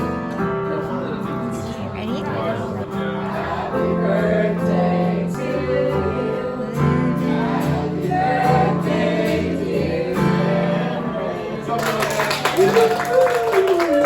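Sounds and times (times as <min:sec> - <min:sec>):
group singing in harmony: 0:02.5 - 0:11.8.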